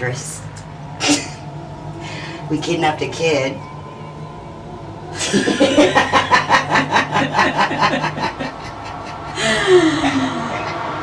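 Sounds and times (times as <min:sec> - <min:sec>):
person laughing hard: 0:05.2 - 0:10.9.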